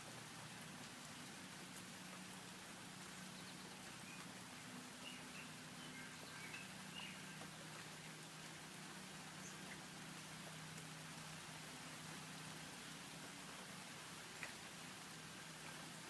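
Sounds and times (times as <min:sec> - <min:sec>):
steady hiss: 0:00.0 - 0:16.0
small birds chirping: 0:03.0 - 0:10.7.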